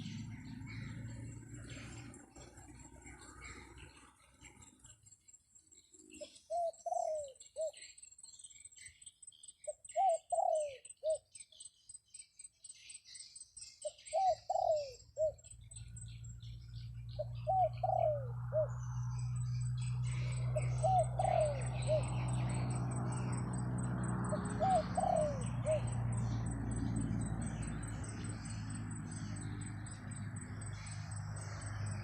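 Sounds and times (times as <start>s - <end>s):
dove cooing: 0.0s - 4.9s, 6.2s - 7.9s, 9.9s - 11.2s, 13.8s - 15.5s, 17.0s - 19.2s, 19.9s - 32.0s
small birds chirping: 0.0s - 32.0s.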